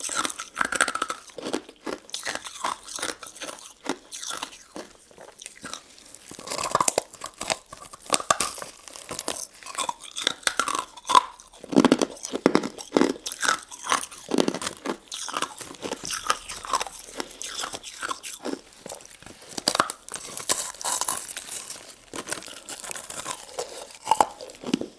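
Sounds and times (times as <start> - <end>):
crunching and chewing: 0.0 - 24.9.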